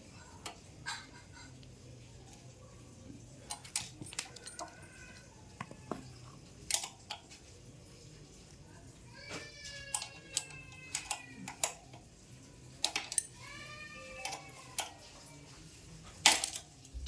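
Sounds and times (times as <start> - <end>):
metal key and parts clinking: 3.4 - 5.6, 12.7 - 13.5.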